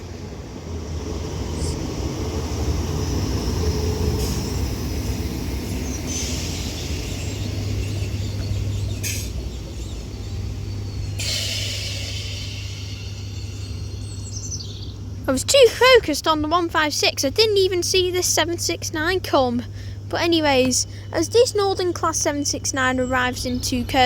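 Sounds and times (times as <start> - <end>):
train hissing: 0.0 - 15.2
train humming: 0.0 - 24.0.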